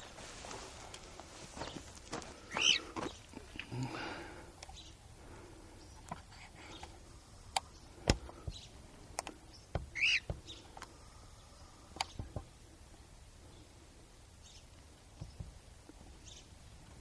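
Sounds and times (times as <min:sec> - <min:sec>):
cockatiel call: 0:02.5 - 0:02.9, 0:09.9 - 0:10.6.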